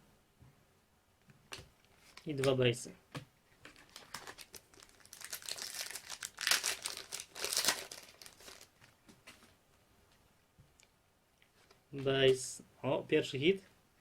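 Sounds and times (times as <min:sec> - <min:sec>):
card pack wrapper crackling: 0:03.7 - 0:08.8.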